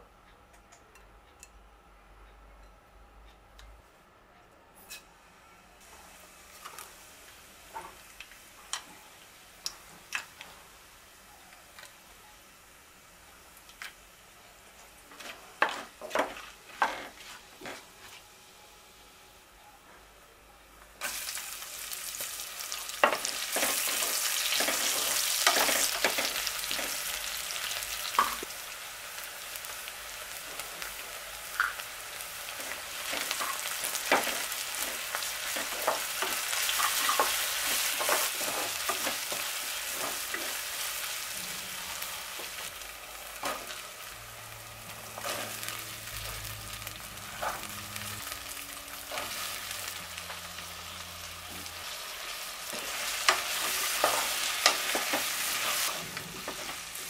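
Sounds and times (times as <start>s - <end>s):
food sizzling in hot oil: 21.0s - 57.0s.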